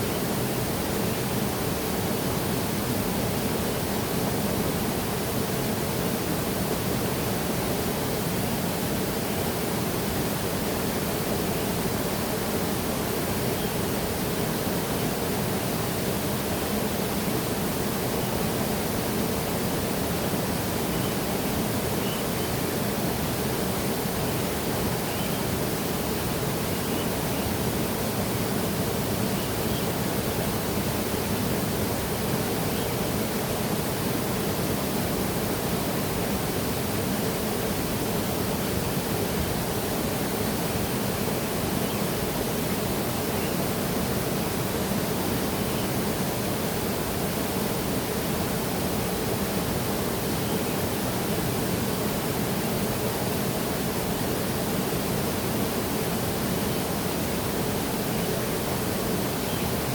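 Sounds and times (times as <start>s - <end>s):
faint high bird chirps: 25.0s - 25.5s.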